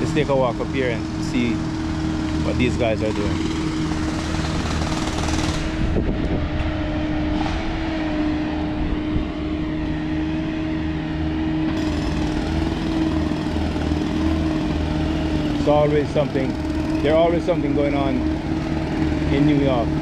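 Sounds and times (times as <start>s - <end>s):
construction machinery humming: 0.0s - 20.0s.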